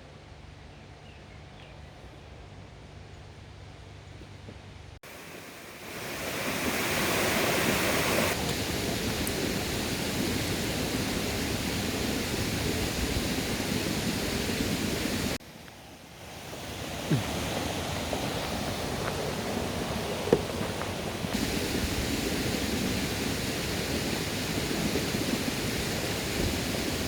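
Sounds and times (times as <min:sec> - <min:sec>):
stream rushing over rocks: 0:05.0 - 0:15.4, 0:16.0 - 0:27.0.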